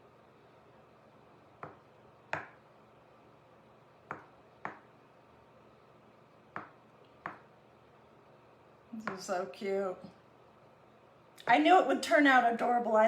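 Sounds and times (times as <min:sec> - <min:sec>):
paintbrush handle tapping: 0:01.6 - 0:02.6, 0:04.1 - 0:04.9, 0:06.6 - 0:07.5.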